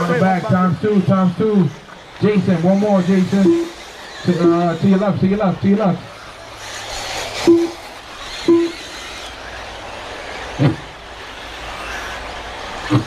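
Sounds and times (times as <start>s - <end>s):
rc buggy motors and tyres hissing: 0.0s - 13.0s
short beeps: 3.4s - 3.8s, 7.4s - 7.8s, 8.4s - 8.8s.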